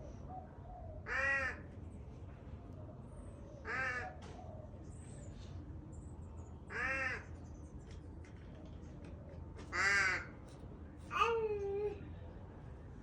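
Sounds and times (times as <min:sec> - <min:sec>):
crow cawing: 0:01.1 - 0:01.7, 0:03.6 - 0:04.1, 0:06.7 - 0:07.3, 0:09.7 - 0:10.3.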